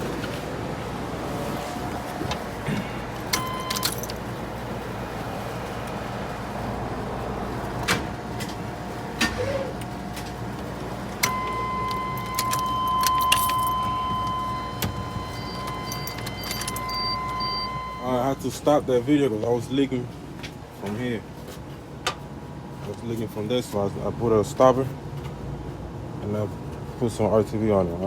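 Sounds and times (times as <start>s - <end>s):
car engine low hum: 0.0s - 18.5s
keys jingling: 3.1s - 4.4s, 11.2s - 18.0s
high electronic tone: 11.2s - 18.4s.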